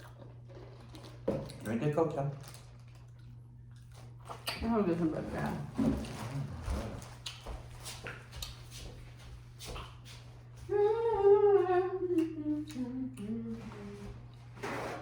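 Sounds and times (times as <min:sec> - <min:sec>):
person humming a tune: 0:10.6 - 0:14.3.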